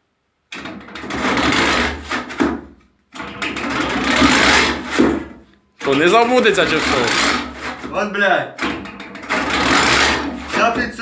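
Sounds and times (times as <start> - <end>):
chainsaw failing to start: 3.8 - 5.0, 5.9 - 7.7, 9.3 - 10.5.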